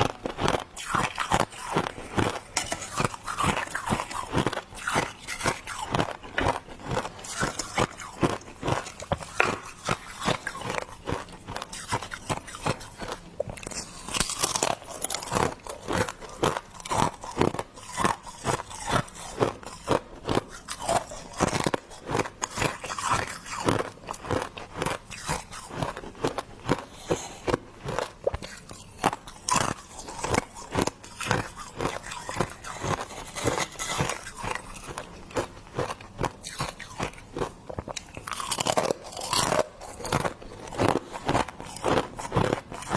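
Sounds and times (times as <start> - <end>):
chewing crunchy ice: 0.0 - 42.9.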